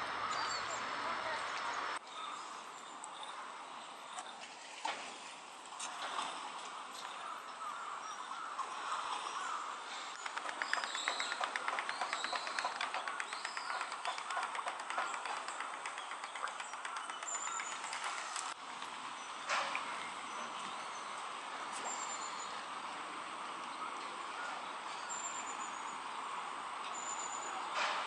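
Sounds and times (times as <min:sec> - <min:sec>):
birds calling: 0:00.0 - 0:03.5, 0:07.0 - 0:18.6
ticking bird notes: 0:10.2 - 0:18.6.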